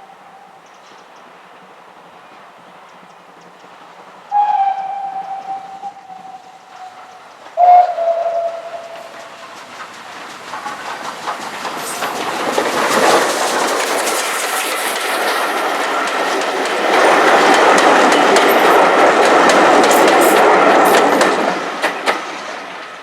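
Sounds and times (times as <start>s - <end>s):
train wheels clattering over rail joints: 0.6s - 23.0s.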